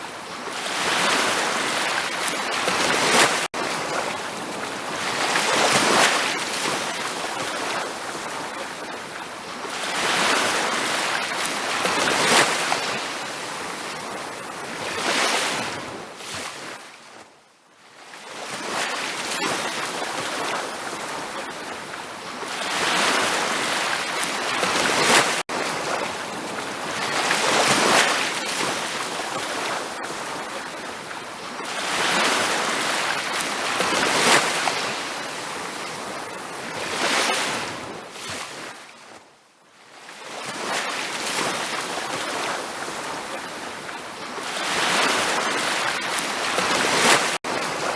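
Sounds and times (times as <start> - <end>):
surf breaking on beach: 0.0 - 8.5, 9.8 - 16.8, 22.4 - 38.8, 44.4 - 47.9.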